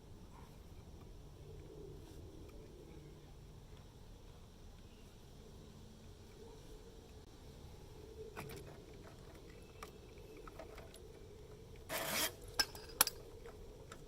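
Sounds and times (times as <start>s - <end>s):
metal scrape: 11.9s - 13.2s
metal tools clinking: 12.5s - 13.3s.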